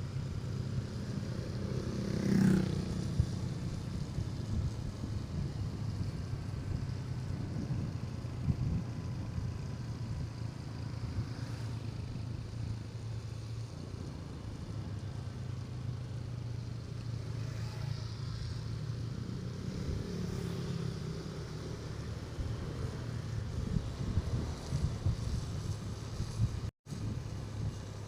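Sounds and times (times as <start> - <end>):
wind rush on microphone: 0.0 - 13.0, 19.3 - 28.0
motorcycle engine running: 0.0 - 28.0.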